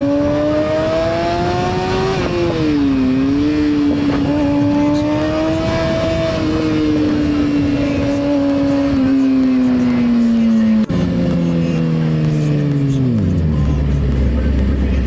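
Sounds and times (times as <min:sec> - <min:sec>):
wind noise: 0:00.0 - 0:09.2
motorcycle engine at high revs: 0:00.0 - 0:15.0.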